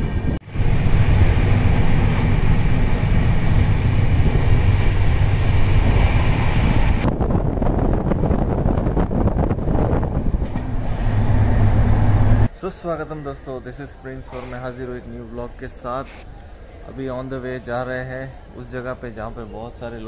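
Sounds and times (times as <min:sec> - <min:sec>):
moving train rumble and rattle: 0:00.0 - 0:12.5
wind on microphone: 0:00.0 - 0:12.5.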